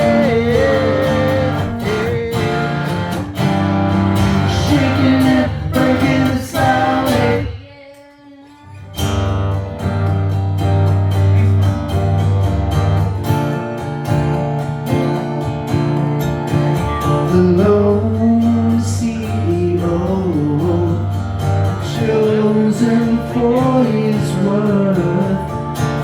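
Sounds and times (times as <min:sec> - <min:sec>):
person singing: 0:00.0 - 0:03.5, 0:04.2 - 0:08.8
deep bass line: 0:00.0 - 0:07.4
strummed acoustic guitar: 0:00.0 - 0:26.0.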